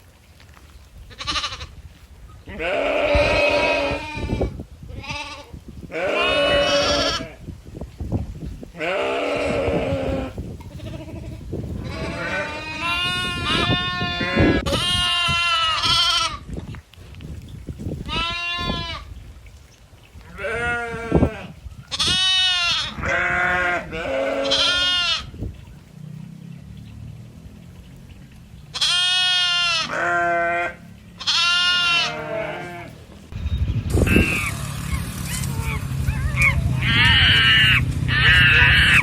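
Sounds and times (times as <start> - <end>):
goats bleating: 2.5 - 7.4, 8.8 - 16.4, 18.1 - 19.1, 20.3 - 25.3, 28.7 - 33.0, 35.6 - 39.0.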